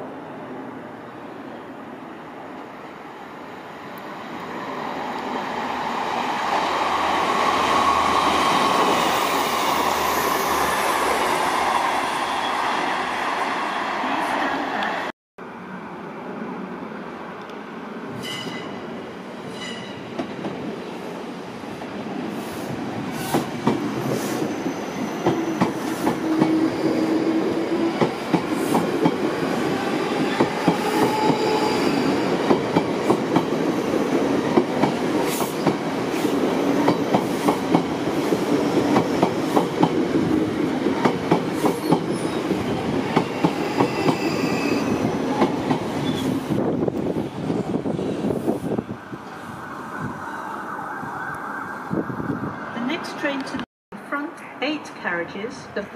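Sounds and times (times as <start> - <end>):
electric train passing: 0.0 - 51.2
brief wheel squeal: 19.5 - 20.0, 43.5 - 45.1.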